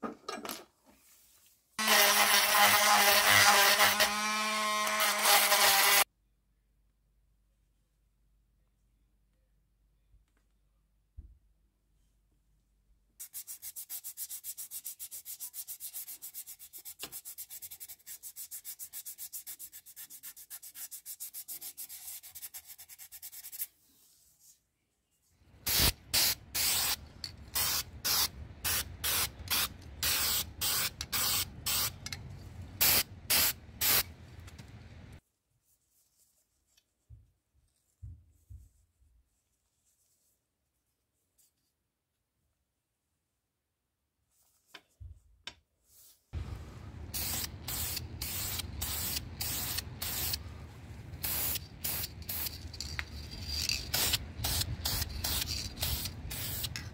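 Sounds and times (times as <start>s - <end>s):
hand sanding strokes: 13.2s - 23.7s.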